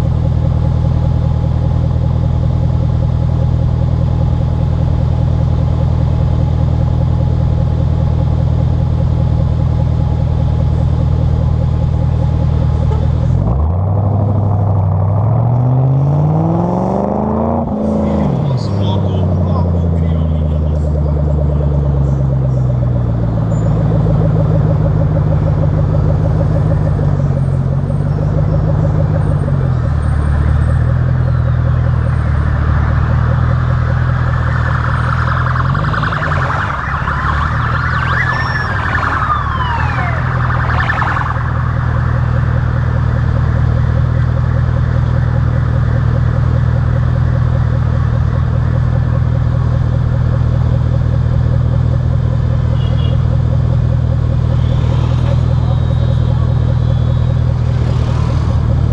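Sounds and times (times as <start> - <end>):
car engine running: 0.0 - 58.9
siren wailing: 23.8 - 46.0.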